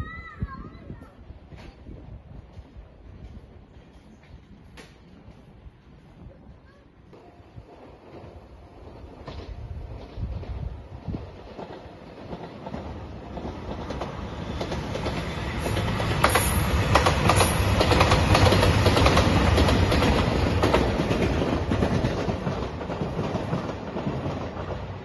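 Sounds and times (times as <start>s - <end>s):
diesel train passing at speed: 7.1s - 25.0s.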